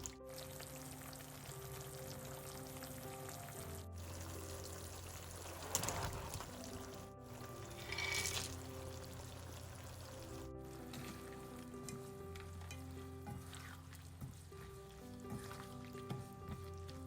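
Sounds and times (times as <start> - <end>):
background music: 0.0 - 17.0
liquid being poured: 4.0 - 10.5.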